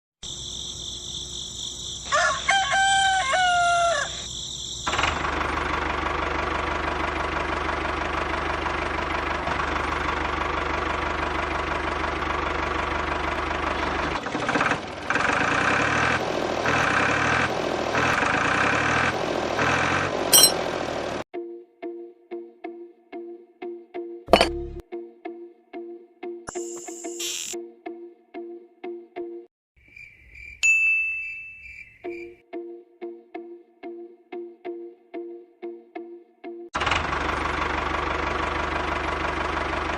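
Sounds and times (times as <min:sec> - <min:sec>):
rooster crowing: 0:02.0 - 0:04.3.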